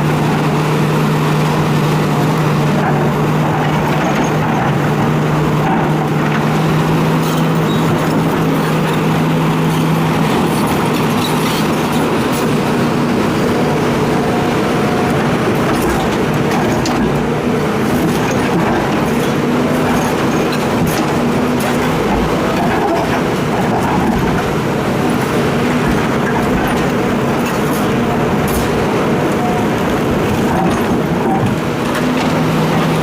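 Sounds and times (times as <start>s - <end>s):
diesel engine running under load: 0.0s - 33.0s.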